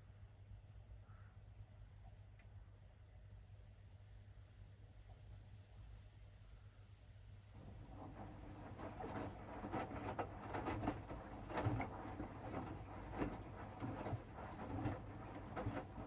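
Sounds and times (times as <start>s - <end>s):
laundry knocking and rustling: 7.6s - 16.0s
low machine hum: 7.6s - 16.0s
washing machine drum turning: 7.6s - 16.0s.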